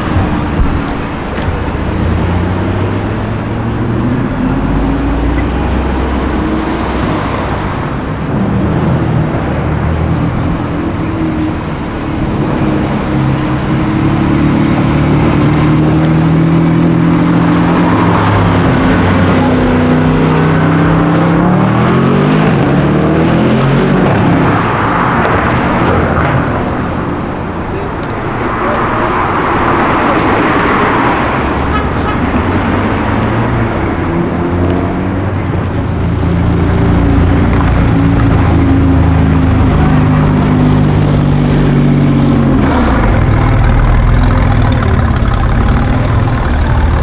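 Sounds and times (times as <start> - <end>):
sports car engine revving: 32.3 - 47.0.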